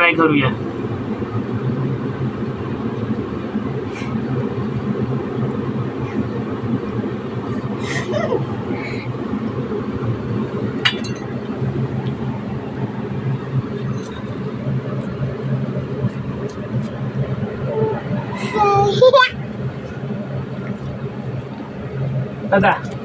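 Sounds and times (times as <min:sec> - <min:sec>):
low background rumble: 0:00.0 - 0:23.0
dishes clinking: 0:10.9 - 0:11.3.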